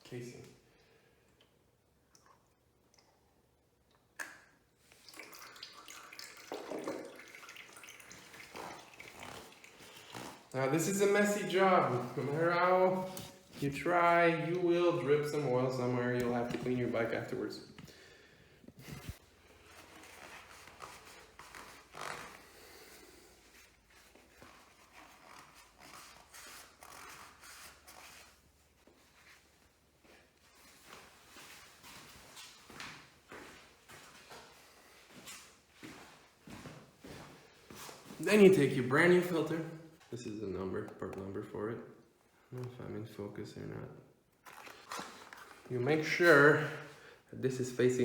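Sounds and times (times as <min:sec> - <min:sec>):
oil trickling and dripping: 0:01.3 - 0:10.6.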